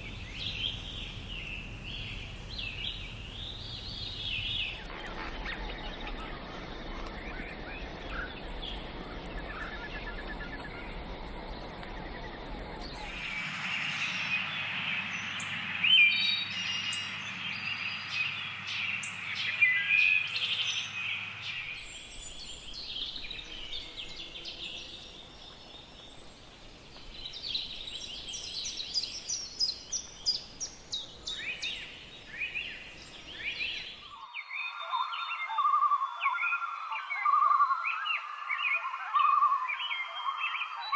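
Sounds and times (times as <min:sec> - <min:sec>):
background hiss: 0:00.0 - 0:15.8, 0:20.6 - 0:34.2
birds chirping and singing: 0:00.0 - 0:40.9.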